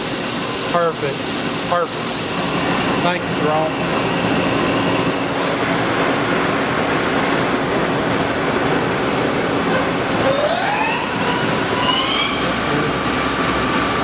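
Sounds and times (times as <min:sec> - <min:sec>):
lathe running with mechanical hum: 0:00.0 - 0:14.0
spindle whine rising in pitch: 0:09.5 - 0:14.0.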